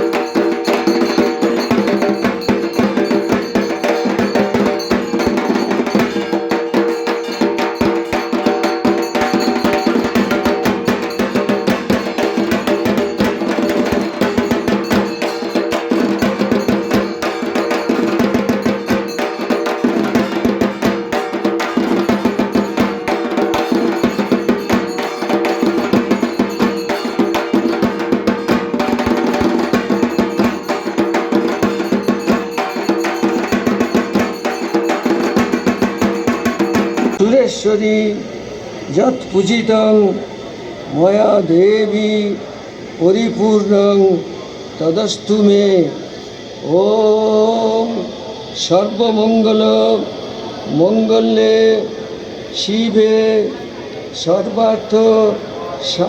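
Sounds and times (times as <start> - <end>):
music with fast drumming: 0.0 - 37.3.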